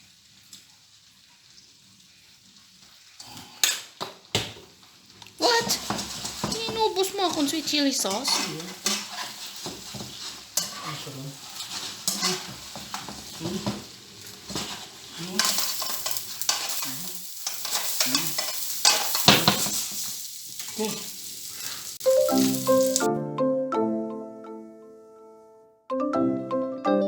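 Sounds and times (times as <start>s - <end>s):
seafood sizzling in a pan: 0.0s - 23.1s
utensil scraping a pan: 5.4s - 21.0s
xylophone-like music: 22.0s - 24.6s.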